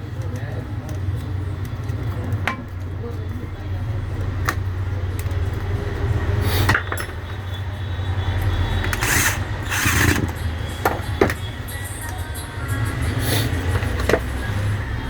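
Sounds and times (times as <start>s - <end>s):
clicks knocks and scrapes of parts: 8.8s - 11.4s.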